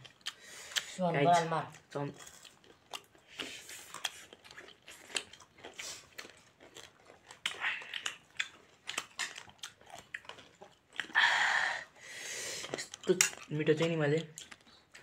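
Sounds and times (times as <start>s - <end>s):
wet chewing and lip smacks: 0.0s - 11.2s, 11.8s - 15.0s.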